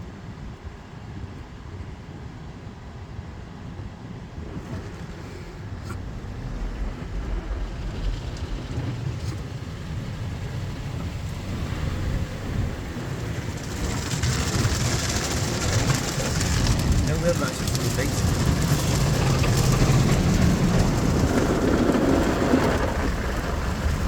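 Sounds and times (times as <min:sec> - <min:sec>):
car wash low rumble: 0:00.0 - 0:24.0
water spray hissing on car: 0:05.2 - 0:24.0.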